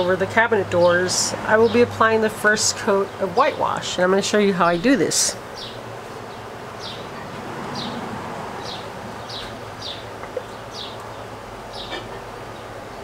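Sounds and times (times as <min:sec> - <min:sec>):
small bird chirping: 0:08.6 - 0:12.7.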